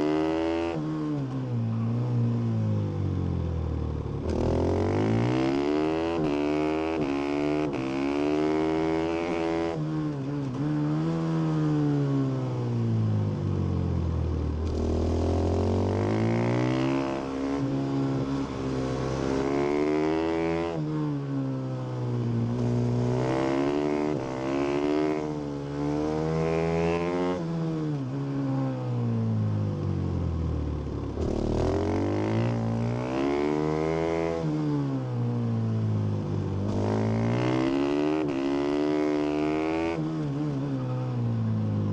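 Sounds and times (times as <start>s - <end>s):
motorcycle engine revving: 3.6s - 21.2s, 22.2s - 28.2s, 30.0s - 35.3s, 36.2s - 41.1s.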